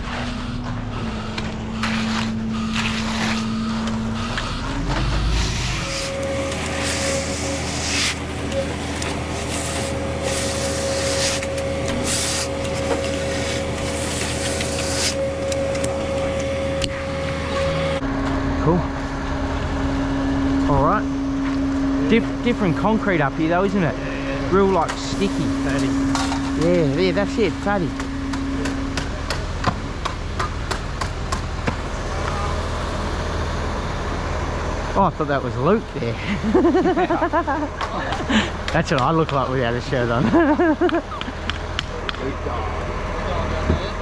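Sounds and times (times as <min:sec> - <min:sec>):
truck engine whining: 0:00.0 - 0:44.0
wet concrete scraping: 0:01.8 - 0:18.0.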